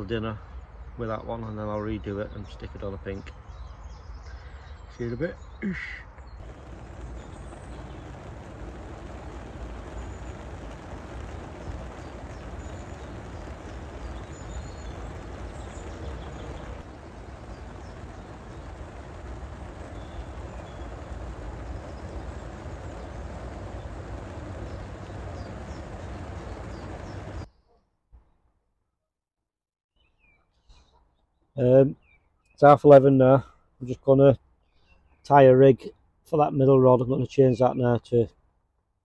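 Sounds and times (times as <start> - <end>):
heavy rain on water: 6.4 - 27.5.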